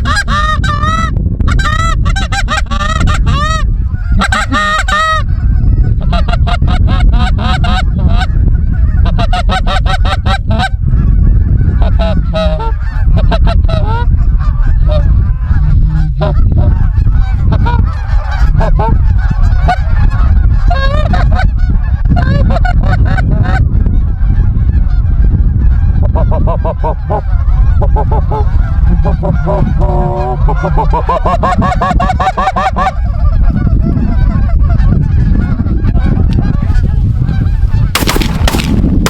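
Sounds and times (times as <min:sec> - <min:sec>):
low rumble: 0:00.0 - 0:20.8
geese honking and clucking: 0:00.0 - 0:39.0.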